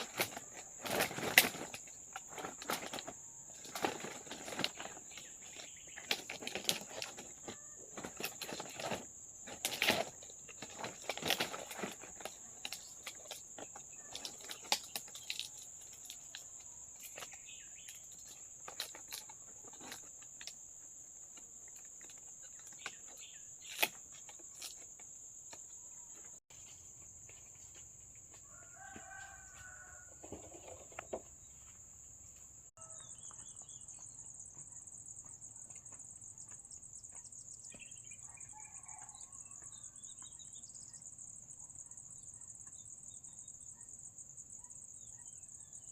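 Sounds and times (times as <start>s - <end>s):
insects droning: 0.0s - 45.9s.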